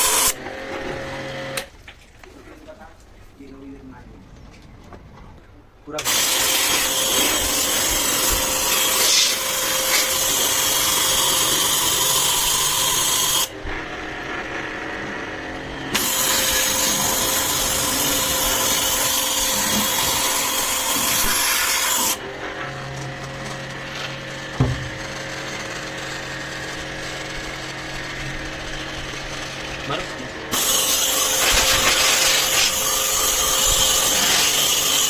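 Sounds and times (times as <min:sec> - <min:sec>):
pressure washer spraying water: 0:00.0 - 0:00.4, 0:06.0 - 0:13.5, 0:16.0 - 0:22.2, 0:30.5 - 0:35.0
pump motor humming: 0:06.0 - 0:35.0.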